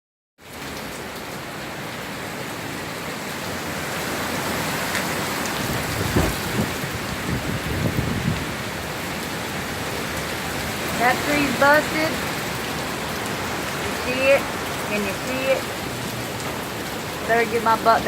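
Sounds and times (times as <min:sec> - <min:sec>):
heavy rain downpour: 0:00.4 - 0:18.0
wind: 0:00.4 - 0:18.0
low gusty thumps: 0:05.6 - 0:09.0.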